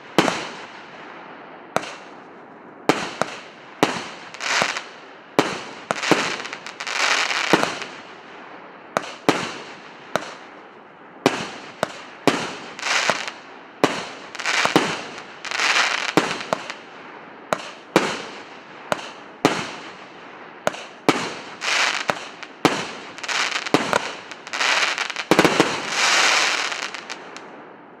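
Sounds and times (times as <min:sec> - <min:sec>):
firework bangs: 0:00.0 - 0:00.8, 0:01.8 - 0:02.1, 0:02.9 - 0:08.2, 0:08.9 - 0:10.5, 0:11.3 - 0:16.8, 0:17.5 - 0:27.4
firework crackling bursts: 0:03.0 - 0:08.2, 0:11.3 - 0:16.8, 0:20.7 - 0:27.4.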